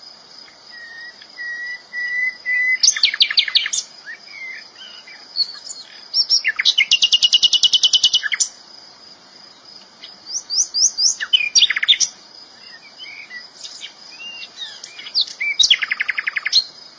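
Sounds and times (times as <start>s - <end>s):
bird singing chirps and whistles: 0.7s - 8.6s, 10.0s - 16.8s
fast rattling bird trill: 6.2s - 8.5s.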